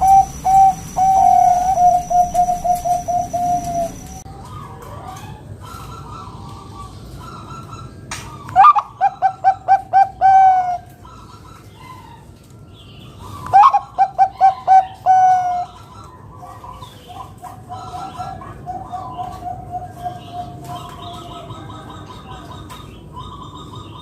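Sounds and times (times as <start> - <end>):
dove cooing: 0.0 - 4.2, 8.5 - 12.2, 13.2 - 24.0.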